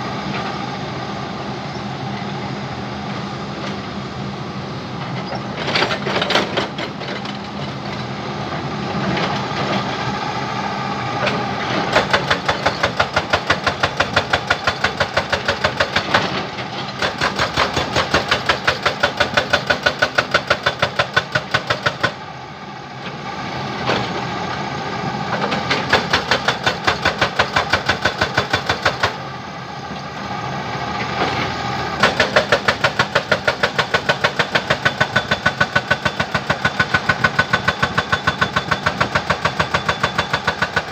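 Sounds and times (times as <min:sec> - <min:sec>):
jackhammer pounding: 0:11.9 - 0:22.2, 0:25.6 - 0:29.2, 0:32.0 - 0:40.9.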